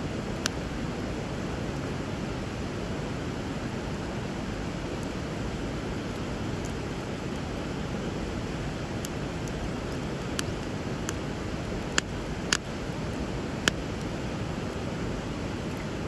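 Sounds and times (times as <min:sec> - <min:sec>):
flowing river water: 0:00.0 - 0:16.0
bonfire pops and cracks: 0:11.8 - 0:12.8.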